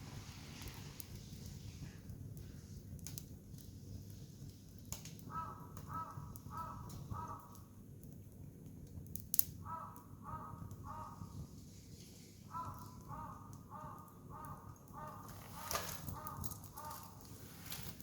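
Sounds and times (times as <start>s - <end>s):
wood campfire crackling: 0.0s - 18.0s
crow cawing: 5.3s - 7.6s, 9.6s - 11.5s, 12.5s - 17.3s.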